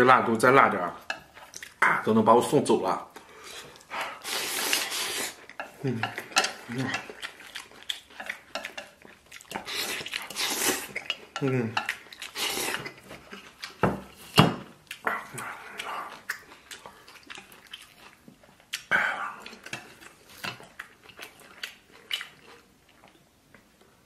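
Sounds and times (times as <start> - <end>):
wet chewing and lip smacks: 1.4 - 1.8, 3.1 - 23.9.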